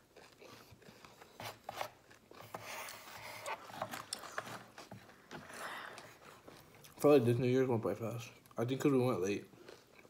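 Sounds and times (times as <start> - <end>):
cereal being chewed: 0.0 - 7.0, 9.6 - 10.0.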